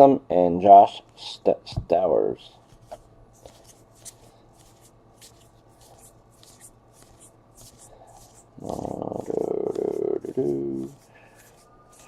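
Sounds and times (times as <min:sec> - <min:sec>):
trading cards sliding together: 0:02.7 - 0:12.0.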